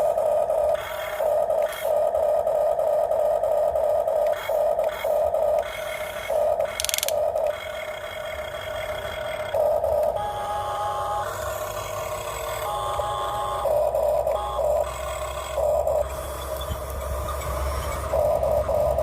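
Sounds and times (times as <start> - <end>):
small electric motors whining: 0.0 - 19.0.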